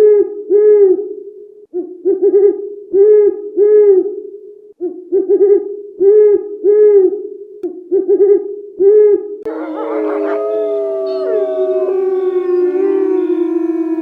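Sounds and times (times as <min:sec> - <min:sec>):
animal hooting calls: 0:09.5 - 0:14.0
steady low drone: 0:09.5 - 0:14.0.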